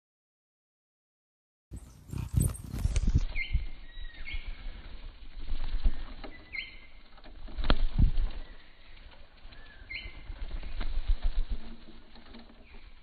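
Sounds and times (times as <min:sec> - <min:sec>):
hummingbird chirps: 0:06.3 - 0:07.0.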